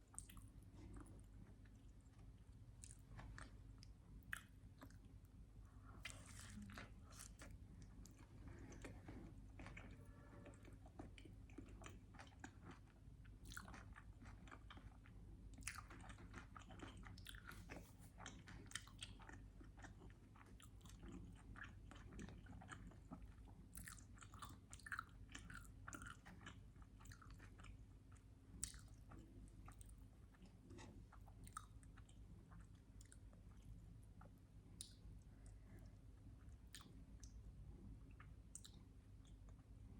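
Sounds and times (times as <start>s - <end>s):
low steady hum: 0.0s - 39.9s
wet chewing and mouth clicks: 6.0s - 35.1s, 36.4s - 37.4s, 38.1s - 39.7s.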